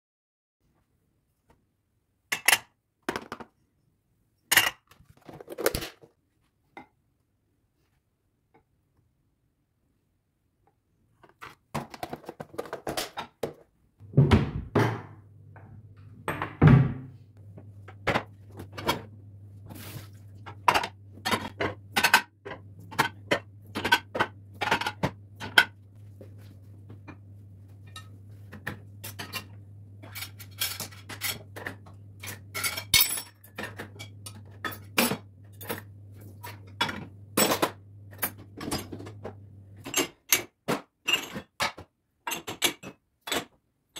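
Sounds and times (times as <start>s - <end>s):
dishes and cutlery clinking: 27.9s - 39.2s.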